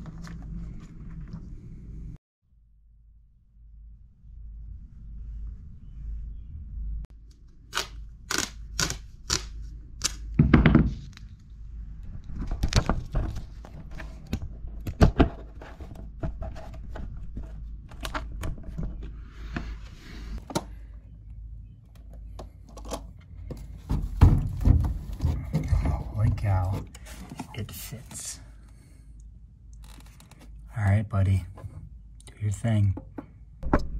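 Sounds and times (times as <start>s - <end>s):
heavy thumps: 23.6s - 26.6s.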